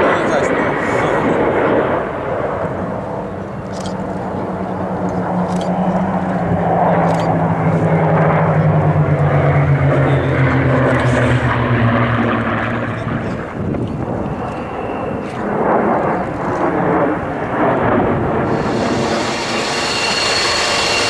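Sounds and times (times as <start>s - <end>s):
aircraft flying past: 0.0s - 21.0s.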